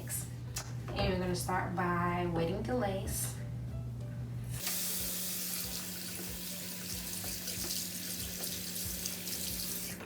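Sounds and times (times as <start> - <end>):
tap water running into a sink: 4.6 - 10.0.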